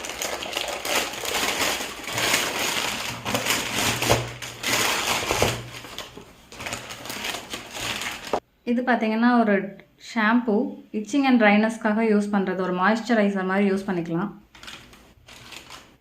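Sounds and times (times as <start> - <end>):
packaging crinkling and rustling: 0.0 - 8.4, 14.5 - 16.0.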